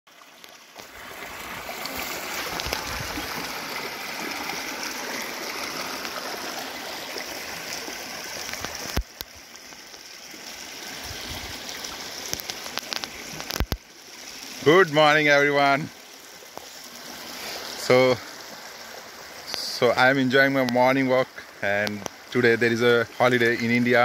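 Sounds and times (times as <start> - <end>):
rain and flowing rainwater: 0.1 - 24.0.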